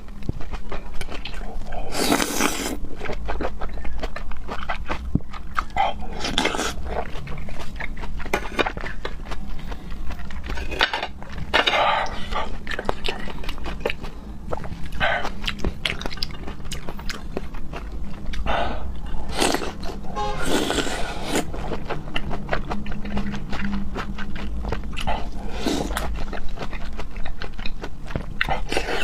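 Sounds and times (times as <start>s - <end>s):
wet chewing and lip-smacking: 0.0s - 29.0s
slurping: 1.3s - 2.8s.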